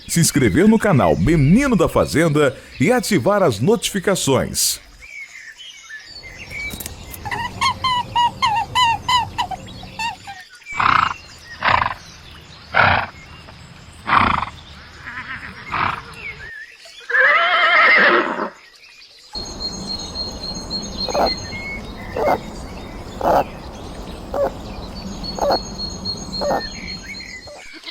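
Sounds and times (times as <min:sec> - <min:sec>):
horse whinnying: 0:17.1 - 0:18.5
horse breathy snorts: 0:19.4 - 0:27.4.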